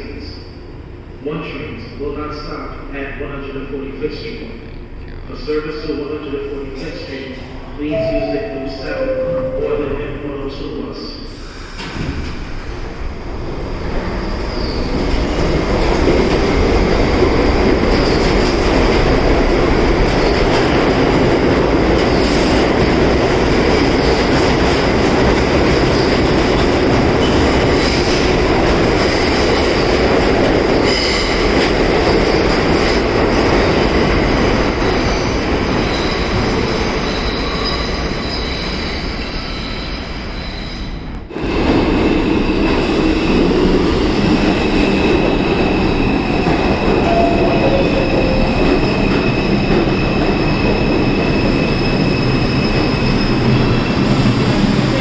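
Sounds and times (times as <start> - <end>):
subway train motor whine: 41.0 - 55.0.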